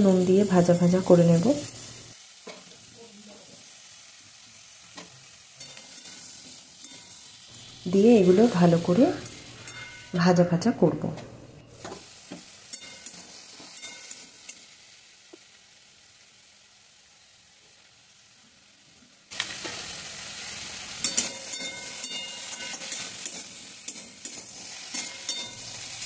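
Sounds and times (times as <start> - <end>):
vegetables sizzling in oil: 0.0 - 26.0
metal spatula scraping pan: 5.6 - 7.3, 9.6 - 10.2, 12.7 - 14.5, 20.9 - 26.0.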